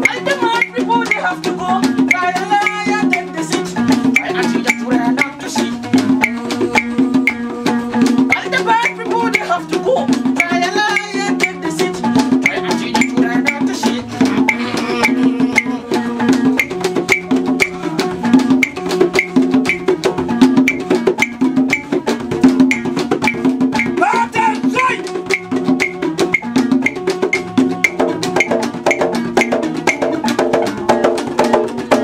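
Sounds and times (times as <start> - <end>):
clicking percussion: 0.0 - 32.0
plucked lute pattern: 0.0 - 32.0
sliding vocal cry: 14.0 - 16.6.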